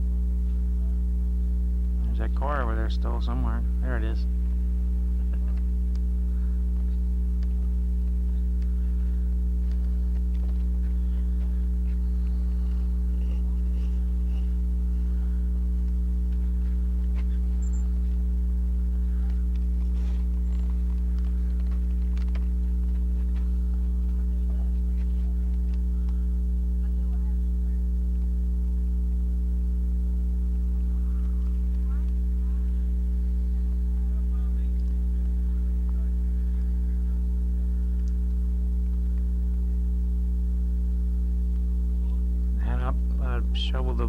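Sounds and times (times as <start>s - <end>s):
electrical mains hum: 0.0s - 44.0s
faint ticks and clicks: 6.7s - 12.9s, 19.2s - 24.3s, 37.9s - 39.7s.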